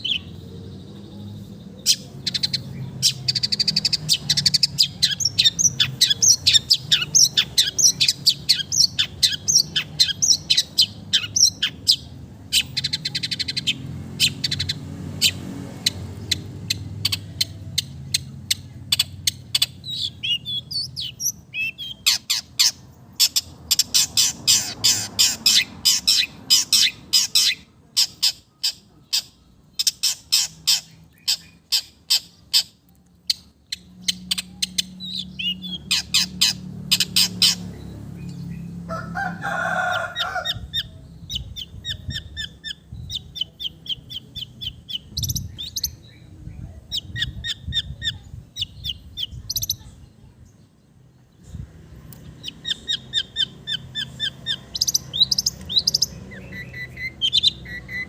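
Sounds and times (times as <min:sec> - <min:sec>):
shrike singing: 0:00.0 - 0:17.6, 0:52.2 - 0:58.0.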